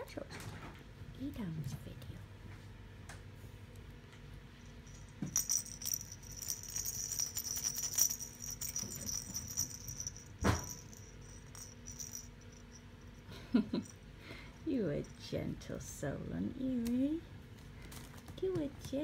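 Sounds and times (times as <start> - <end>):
small metal pieces jingling: 4.8 - 12.8.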